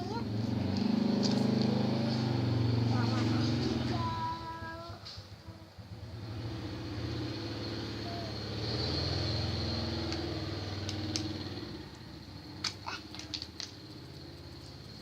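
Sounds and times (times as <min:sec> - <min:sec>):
low engine-like hum: 0:00.0 - 0:15.0
small sharp clicks: 0:10.0 - 0:12.0, 0:12.6 - 0:14.8.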